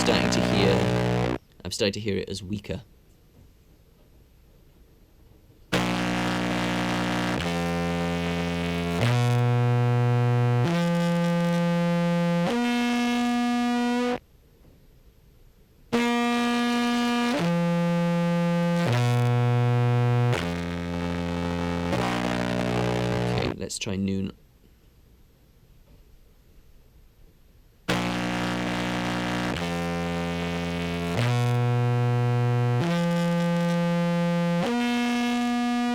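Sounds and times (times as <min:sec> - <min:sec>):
distorted contrabass clarinet: 0:00.0 - 0:01.4, 0:05.8 - 0:14.2, 0:16.0 - 0:23.6, 0:27.9 - 0:35.9.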